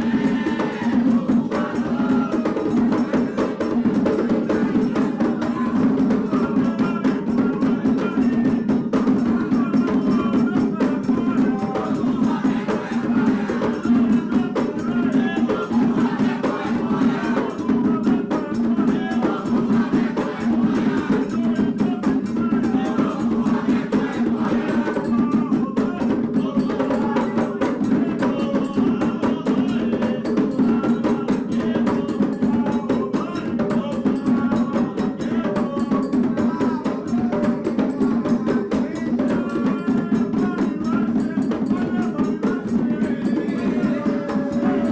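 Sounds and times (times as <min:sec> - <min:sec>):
hand drums playing fast rhythm: 0:00.0 - 0:44.9
voices singing: 0:00.0 - 0:44.9.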